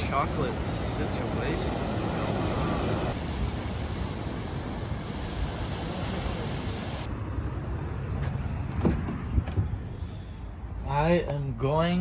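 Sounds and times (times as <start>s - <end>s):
ocean surf washing: 0.0s - 7.1s
wind rumbling on microphone: 0.0s - 10.8s.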